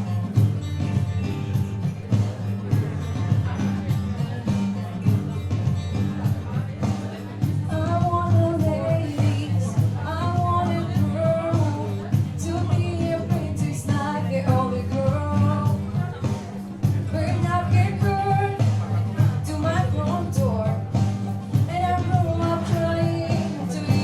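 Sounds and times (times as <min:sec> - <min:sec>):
instrumental accompaniment: 0:00.0 - 0:24.0
steady beat: 0:00.0 - 0:24.0
group of young people singing: 0:21.6 - 0:24.0.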